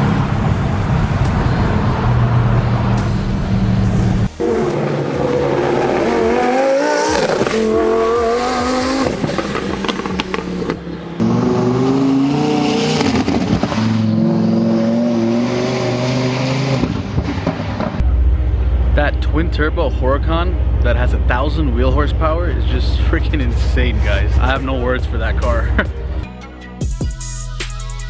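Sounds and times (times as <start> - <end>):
exhaust pops: 0.0 - 11.5
sports car engine revving: 0.0 - 18.1.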